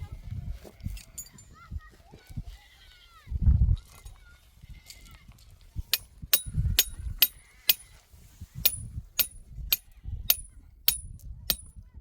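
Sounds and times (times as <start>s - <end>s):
hammer blows on metal: 5.9s - 7.9s, 8.6s - 11.7s.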